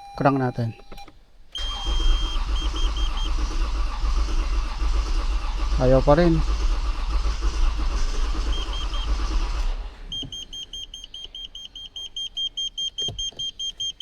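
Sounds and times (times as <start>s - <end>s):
high electronic beeps: 1.6s - 3.4s, 8.4s - 9.1s, 10.1s - 14.0s
starter cranking engine: 1.6s - 11.9s.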